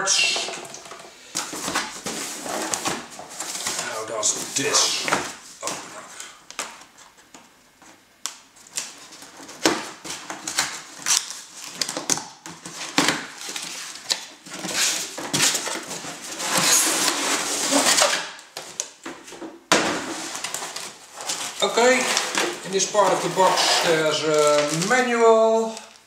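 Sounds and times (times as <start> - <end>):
packaging rustling and crinkling: 0.7 - 7.2, 8.6 - 19.0, 20.0 - 26.0.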